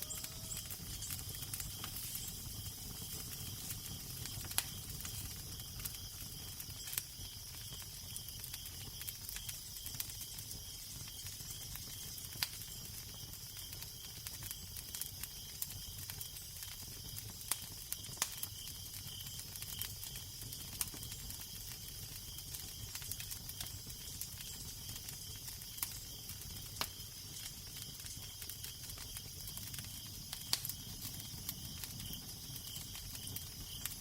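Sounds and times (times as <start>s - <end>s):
fire crackling and popping: 0.0s - 34.0s.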